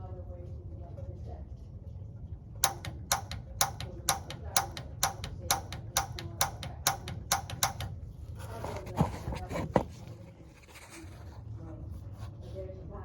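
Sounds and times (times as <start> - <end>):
gas igniter clicking: 2.6 - 8.0.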